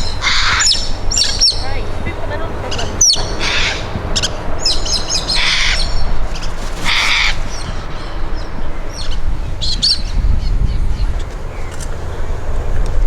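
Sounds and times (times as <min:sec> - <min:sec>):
parrots squawking: 0:00.0 - 0:10.2
steady low rumble: 0:00.0 - 0:13.0.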